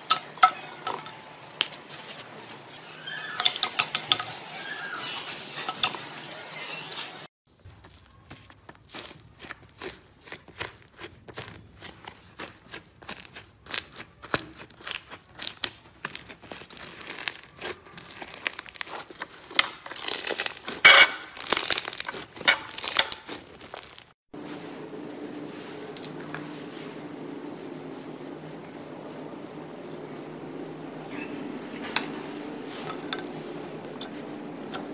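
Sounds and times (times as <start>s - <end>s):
slime crackling and popping: 8.8s - 24.1s.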